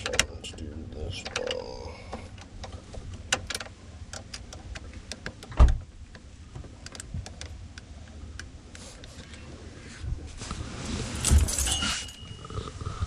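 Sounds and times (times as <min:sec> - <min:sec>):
hands clicking switch parts: 0:00.0 - 0:00.4, 0:01.2 - 0:08.6.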